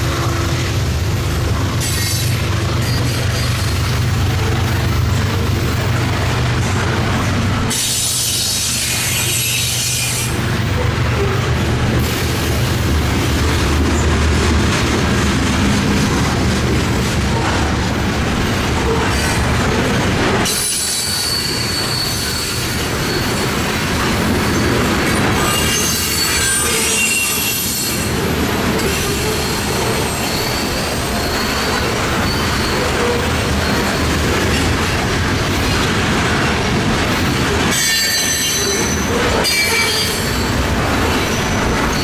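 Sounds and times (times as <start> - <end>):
train wheels on rails: 0.0 - 42.0
high-pitched wheel squeal: 20.5 - 23.6, 25.4 - 28.1, 28.9 - 34.2.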